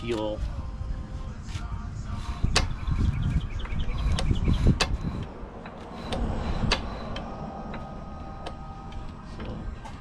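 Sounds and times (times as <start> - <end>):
engine mechanism clicks: 3.6 - 10.0.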